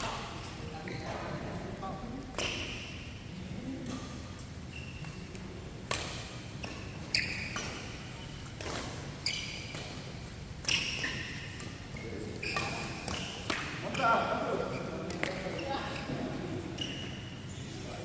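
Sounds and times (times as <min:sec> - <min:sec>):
shoe squeaks: 0:04.6 - 0:05.3, 0:06.6 - 0:18.0
rackets hitting shuttlecock: 0:05.8 - 0:06.9, 0:07.5 - 0:14.1.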